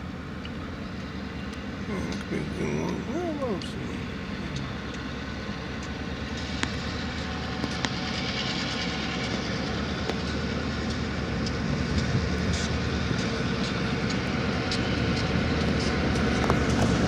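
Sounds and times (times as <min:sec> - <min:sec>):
freight train rumbling: 0:00.0 - 0:17.0
wheels clicking on rails: 0:04.3 - 0:17.0.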